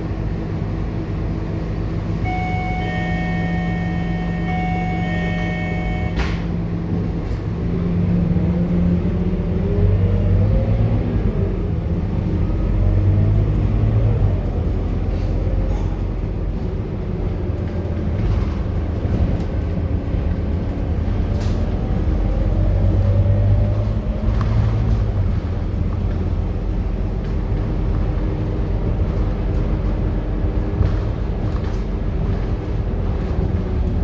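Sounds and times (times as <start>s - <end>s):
bus diesel engine running: 0.0s - 34.0s.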